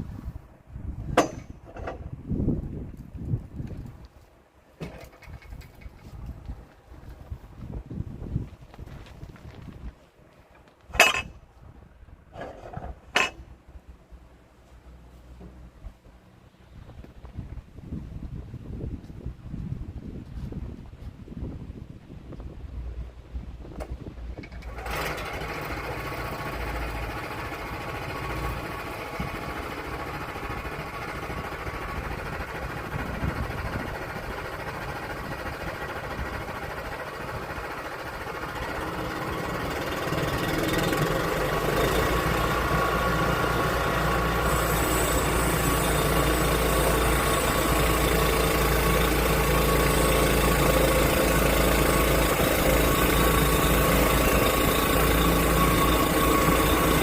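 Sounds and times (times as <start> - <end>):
sawmill engine running: 24.4 - 57.0.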